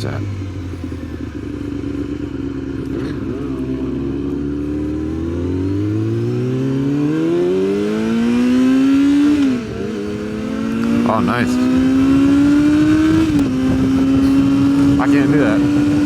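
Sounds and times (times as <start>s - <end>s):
motorcycle engine accelerating: 0.0s - 16.0s
wind and road noise: 0.0s - 16.0s.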